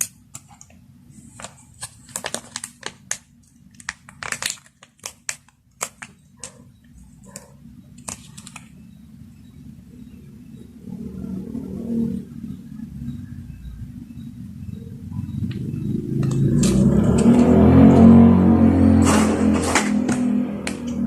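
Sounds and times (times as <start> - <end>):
food packaging crinkling: 0.0 - 7.3, 8.0 - 8.7.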